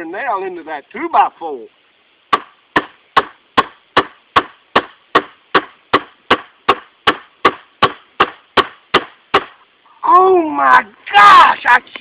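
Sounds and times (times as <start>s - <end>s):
pistol hammering a nail into wood: 2.3s - 9.6s.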